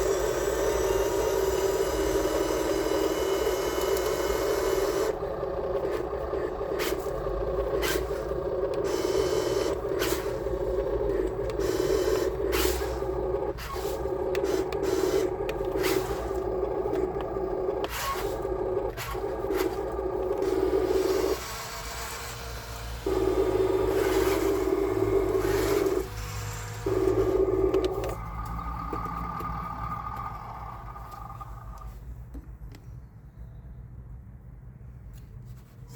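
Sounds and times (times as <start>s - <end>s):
electric motor whine: 0.0s - 31.8s.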